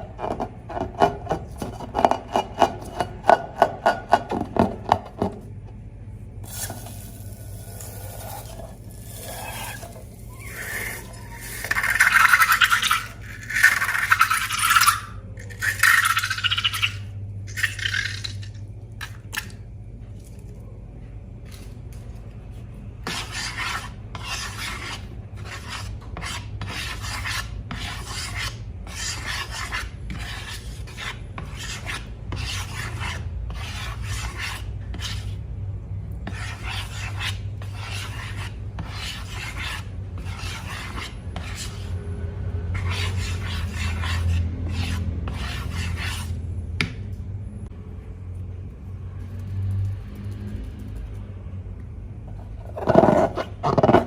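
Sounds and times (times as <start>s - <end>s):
low steady hum: 0.0s - 54.0s
rasping scraping strokes: 7.2s - 17.0s, 23.1s - 35.4s, 36.2s - 42.0s, 42.7s - 46.4s.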